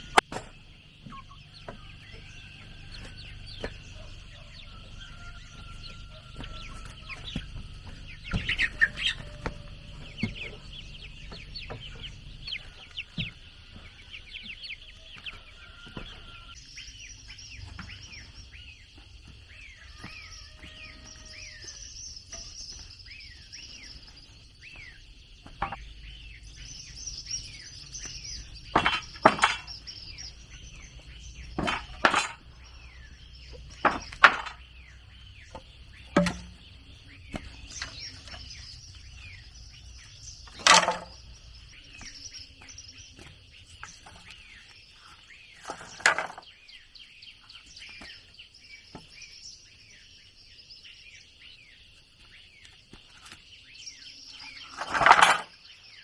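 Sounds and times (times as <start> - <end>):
chickens clucking: 0.0 - 46.4
small birds chirping: 0.0 - 56.0
sharp knocks: 35.5 - 36.7.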